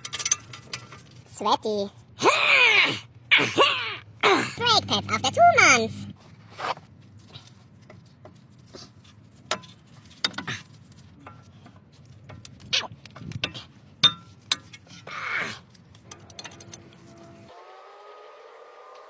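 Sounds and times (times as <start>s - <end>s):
metallic clinks and knocks: 0.0s - 1.3s, 9.4s - 15.0s, 15.9s - 17.3s.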